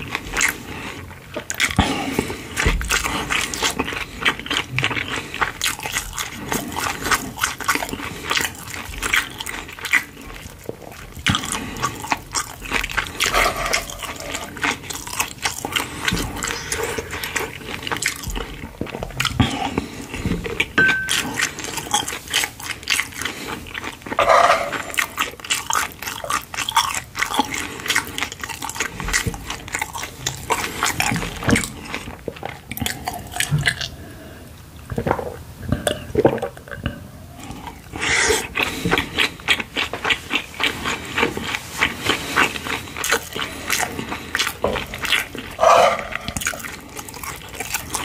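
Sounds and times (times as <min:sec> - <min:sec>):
chewing with clicks: 0:00.0 - 0:34.0, 0:36.6 - 0:48.0
wooden spoon scraping a pan: 0:13.2 - 0:14.5, 0:24.2 - 0:25.2, 0:45.6 - 0:46.6.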